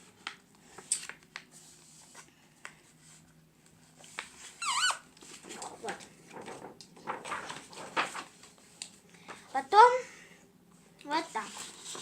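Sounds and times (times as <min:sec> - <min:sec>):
paper rustling and crackling: 0:05.2 - 0:09.0, 0:11.3 - 0:12.0.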